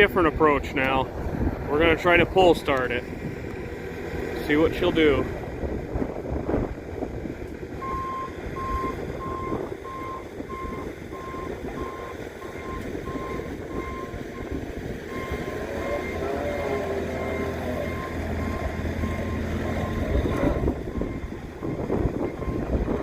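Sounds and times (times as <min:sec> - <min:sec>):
backup alarm beeping: 0:07.8 - 0:22.8.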